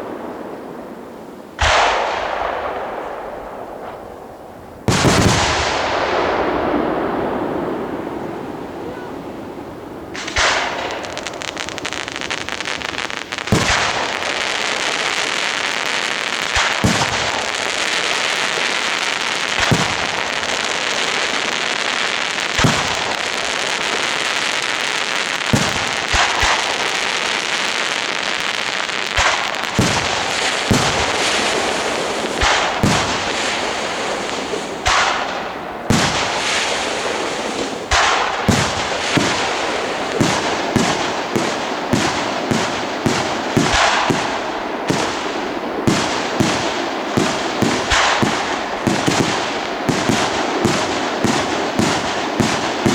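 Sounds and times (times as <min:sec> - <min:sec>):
fireworks crackling: 0:00.0 - 0:52.9
firework shell bursts banging: 0:10.1 - 0:11.6, 0:29.2 - 0:45.2, 0:45.9 - 0:52.9.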